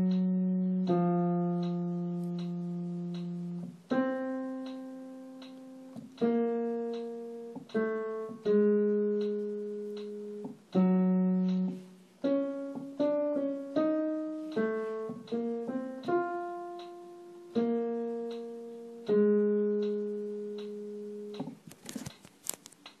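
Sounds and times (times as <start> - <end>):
piano melody: 0.0 - 21.6
clicks: 1.6 - 3.4.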